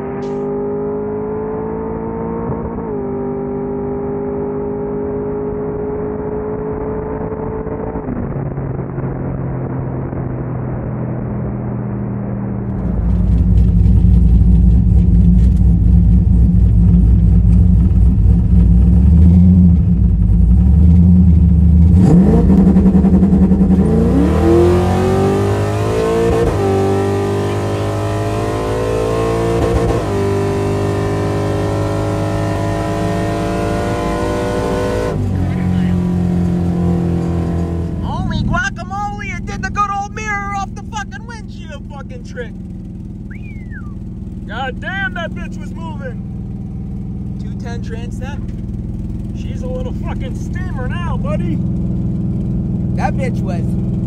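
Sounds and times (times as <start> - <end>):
car engine revving and launching: 0.0 - 14.1, 18.9 - 38.3.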